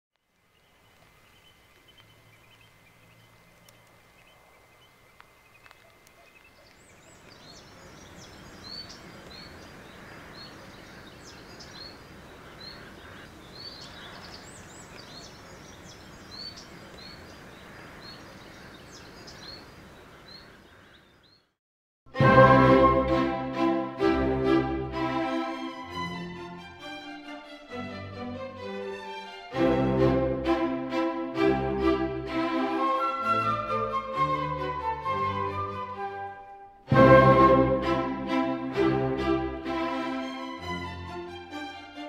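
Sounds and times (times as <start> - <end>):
bird chirping: 0.3 - 21.6.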